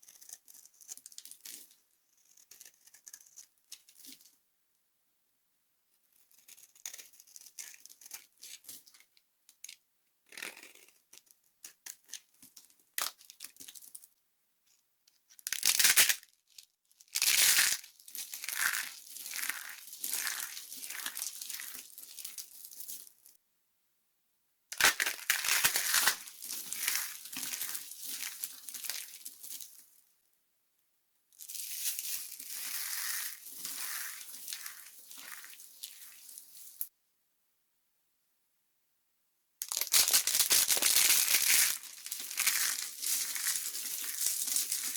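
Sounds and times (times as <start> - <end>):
soap crackling and crunching: 0.0 - 4.3, 6.3 - 9.0, 10.3 - 14.1, 15.4 - 23.3, 24.8 - 30.0, 31.4 - 36.9, 39.6 - 44.9.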